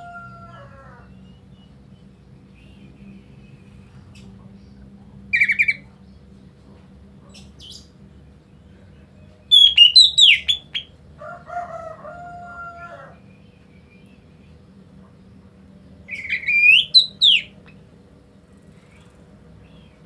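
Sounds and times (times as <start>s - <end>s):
bird chattering: 5.3s - 5.9s, 9.5s - 11.0s, 16.1s - 17.8s
shrill whistled bird calls: 9.5s - 10.9s, 16.1s - 17.6s
low drawn-out bird call: 9.5s - 11.3s, 16.1s - 17.6s.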